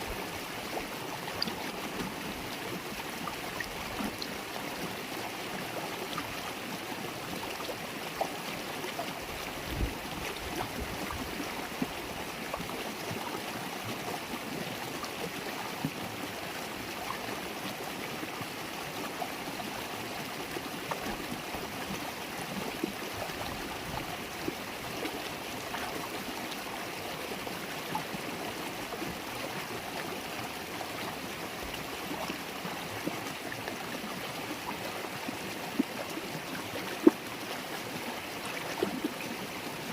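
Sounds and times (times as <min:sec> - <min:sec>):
river water babbling over stones: 0:00.0 - 0:39.9
small water splashes: 0:33.2 - 0:39.8.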